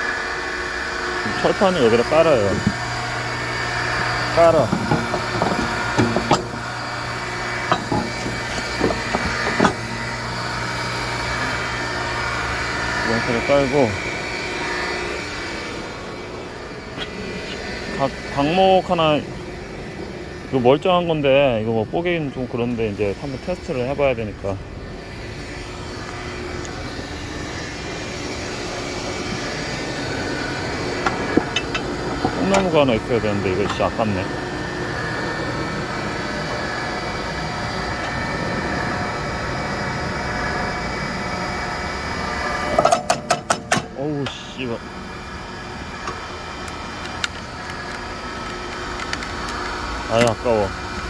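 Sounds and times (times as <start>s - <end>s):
electric motor and hydraulic pump drone: 0.0s - 51.0s
steady low hum: 0.0s - 51.0s
steel plate clanking: 4.3s - 10.3s, 31.0s - 34.2s, 42.7s - 44.5s.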